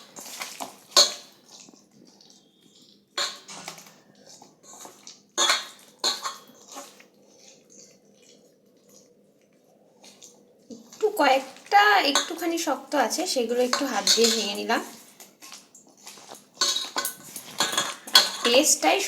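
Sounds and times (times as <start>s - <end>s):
wet squelching of mashing: 0.0s - 19.0s
knocks and clinks against bowl: 16.3s - 18.7s.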